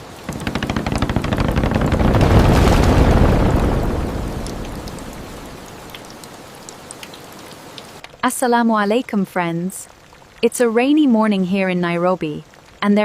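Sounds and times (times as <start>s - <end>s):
thunder rumbling: 0.0s - 6.5s
water dripping: 0.0s - 8.2s
rain falling: 0.0s - 13.0s.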